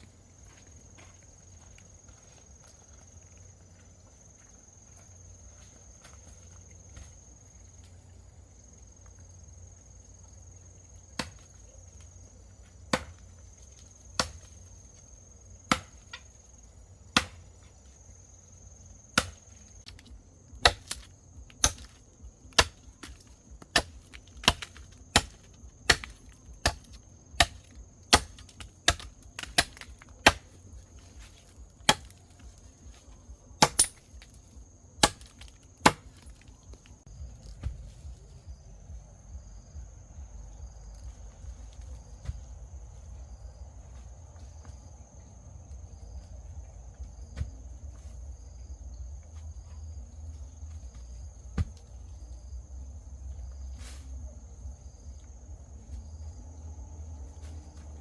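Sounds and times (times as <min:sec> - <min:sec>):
chopping strikes on wood: 0:11.2 - 0:11.5, 0:12.8 - 0:13.4, 0:14.2 - 0:14.6, 0:15.7 - 0:16.3, 0:17.1 - 0:17.5, 0:19.1 - 0:32.6, 0:33.6 - 0:34.4, 0:35.0 - 0:36.5, 0:47.3 - 0:47.6, 0:50.9 - 0:51.9.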